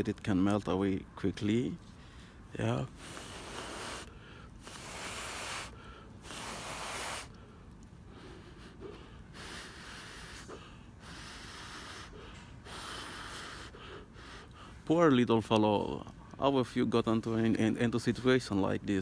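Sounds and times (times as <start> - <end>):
person breathing out heavily: 2.0 - 14.8.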